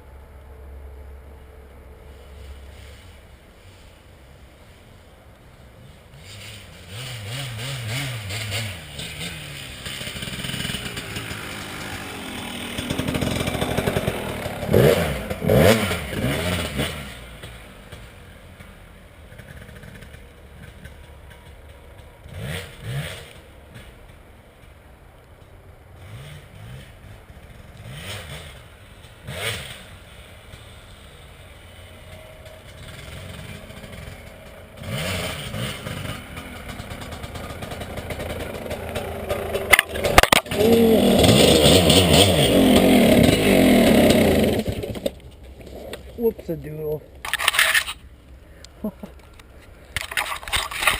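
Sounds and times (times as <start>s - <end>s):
dirt bike engine revving: 6.1s - 18.1s, 22.2s - 24.0s, 26.0s - 48.1s.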